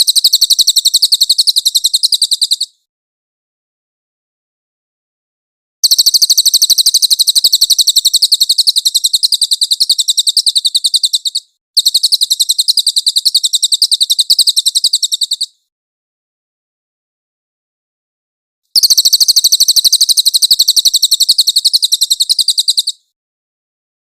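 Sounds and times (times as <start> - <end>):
bird trilling sharp chips: 0.0 - 2.8, 5.8 - 15.6, 18.8 - 23.0.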